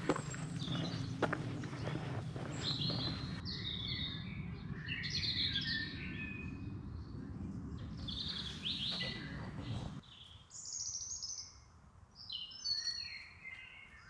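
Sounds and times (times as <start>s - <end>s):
low steady background rumble: 0.0s - 10.0s
songbirds singing and chirping: 0.0s - 14.0s.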